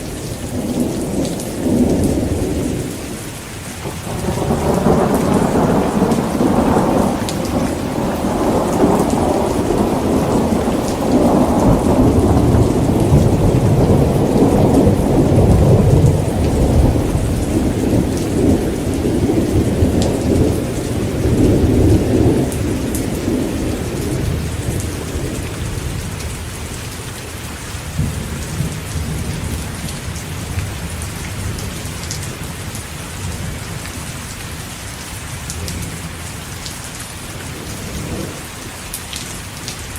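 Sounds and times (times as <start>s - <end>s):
heavy rain: 0.0s - 39.9s
rolling thunder: 3.8s - 26.8s, 27.9s - 34.0s, 37.3s - 38.8s.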